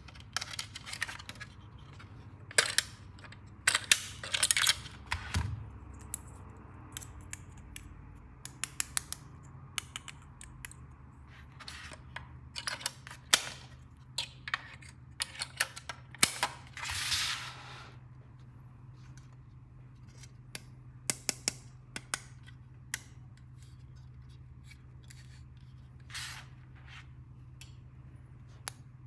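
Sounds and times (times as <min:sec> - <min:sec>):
plastic toy pieces clicking: 0:02.5 - 0:03.0.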